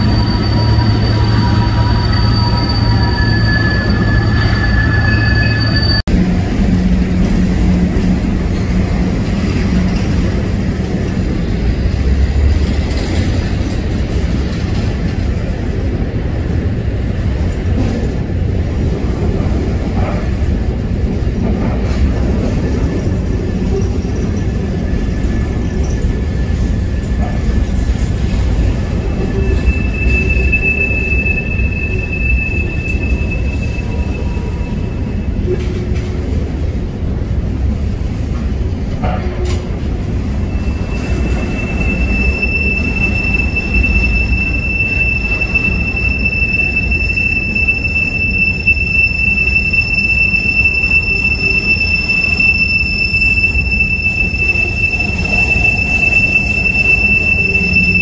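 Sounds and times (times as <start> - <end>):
high wheel squeal: 0.0 - 6.1, 23.7 - 35.5, 40.2 - 58.0
train wheels rumbling on rail: 0.0 - 58.0.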